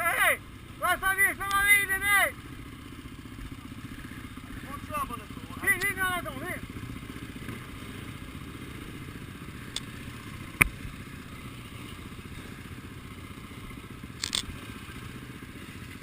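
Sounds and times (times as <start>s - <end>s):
motorcycle engine idling: 0.0s - 16.0s
sharp click: 9.7s - 9.9s, 14.2s - 14.5s.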